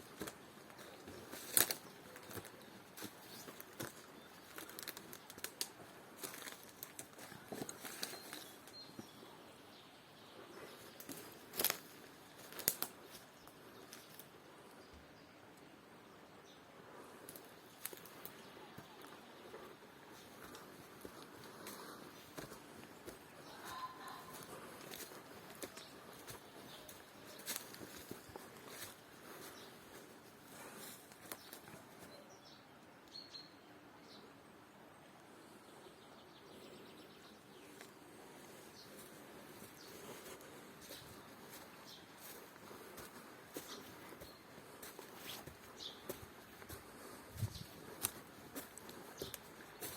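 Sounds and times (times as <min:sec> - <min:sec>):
crackling rustles: 0:00.0 - 0:08.8, 0:10.9 - 0:13.2, 0:17.2 - 0:18.4, 0:19.5 - 0:32.0.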